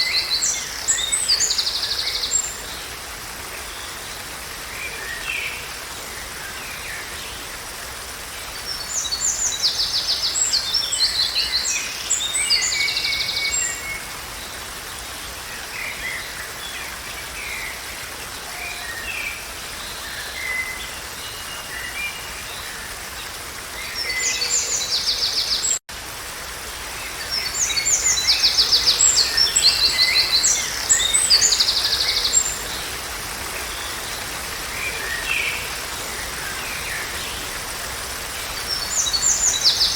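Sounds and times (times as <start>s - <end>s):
songbirds singing: 0.0s - 7.8s, 27.0s - 39.9s.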